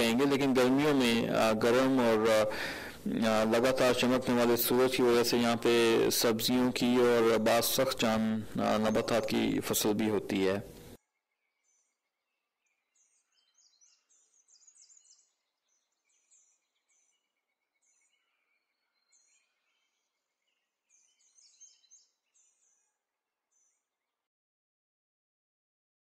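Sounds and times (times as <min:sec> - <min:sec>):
faint steady hiss: 0:00.0 - 0:11.0
small birds chirping: 0:00.0 - 0:24.0.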